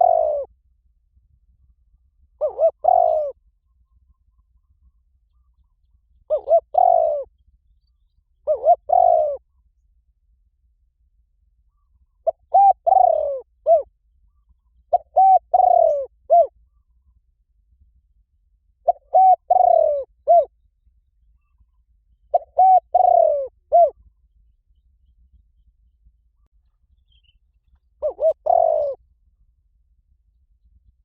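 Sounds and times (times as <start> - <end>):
dove cooing: 0.0 - 0.5, 2.4 - 3.4, 6.3 - 7.3, 8.4 - 9.5, 11.7 - 13.9, 14.9 - 16.8, 18.8 - 20.5, 22.3 - 24.1, 28.0 - 29.0.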